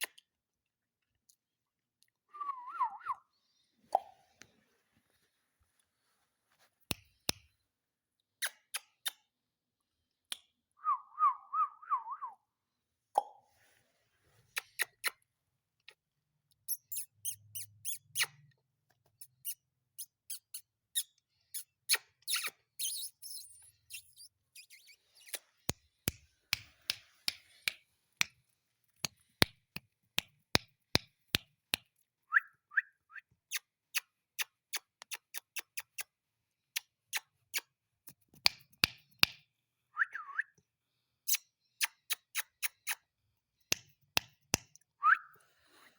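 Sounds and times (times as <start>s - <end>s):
parrot chirp: 16.7s - 18.4s, 19.4s - 25.5s
sharp clicks and taps: 29.0s - 31.9s, 43.7s - 44.8s.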